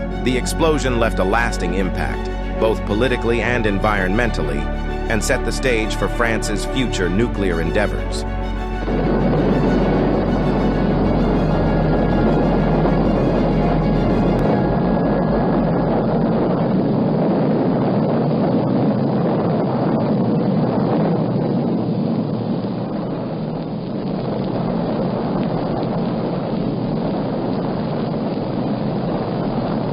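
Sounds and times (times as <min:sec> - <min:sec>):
deep rumbling roar: 0:06.3 - 0:19.3
faint crackles: 0:14.4 - 0:29.9.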